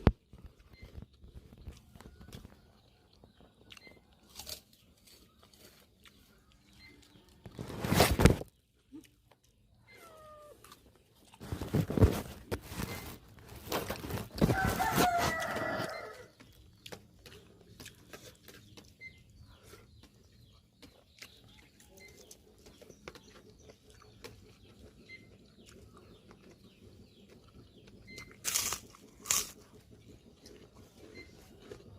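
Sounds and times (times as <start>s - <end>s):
rooster crowing: 14.4s - 16.3s.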